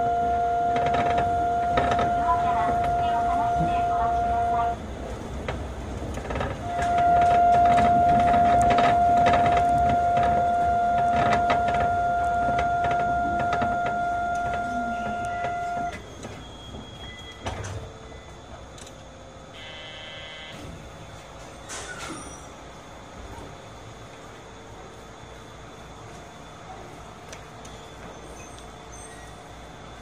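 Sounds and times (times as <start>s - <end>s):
train rumble: 0.0s - 19.6s
train high whine: 0.0s - 30.0s.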